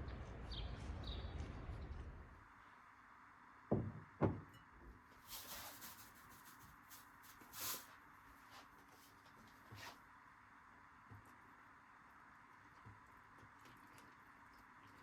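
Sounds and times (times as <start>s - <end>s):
dull knocks: 3.7s - 4.6s.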